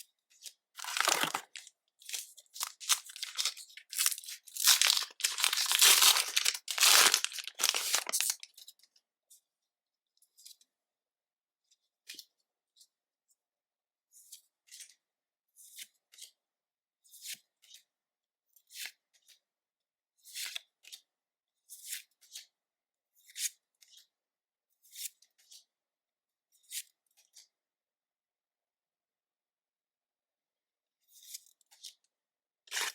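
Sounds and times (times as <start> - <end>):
foil wrapper tearing and crinkling: 0.8 - 8.4.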